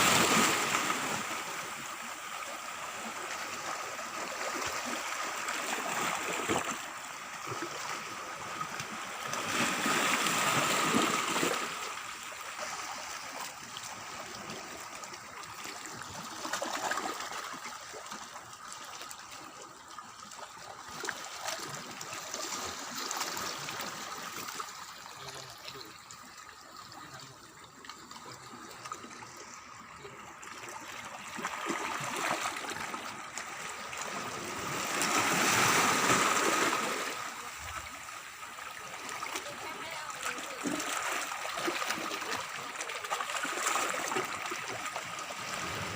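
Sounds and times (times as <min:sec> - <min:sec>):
water trickling and sloshing: 0:00.0 - 0:45.9.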